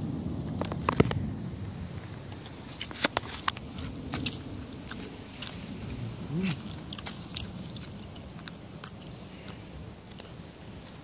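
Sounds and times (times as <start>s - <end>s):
person chewing crunchy food: 2.7s - 11.0s.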